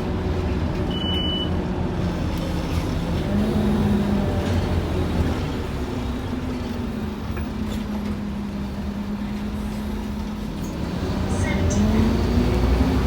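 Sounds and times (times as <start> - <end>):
bus engine droning: 0.0 - 13.0.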